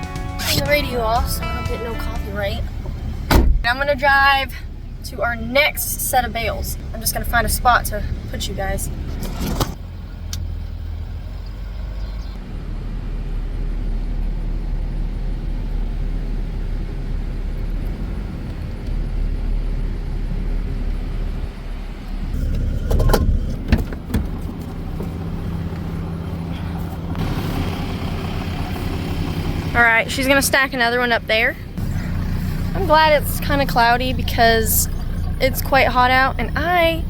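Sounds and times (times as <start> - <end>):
truck engine running: 0.0 - 37.0
knocks and rattles: 22.4 - 25.4.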